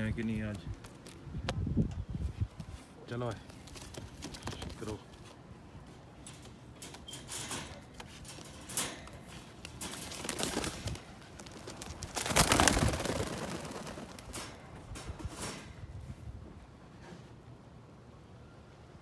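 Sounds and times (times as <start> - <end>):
pigeons rustling: 0.2 - 17.2.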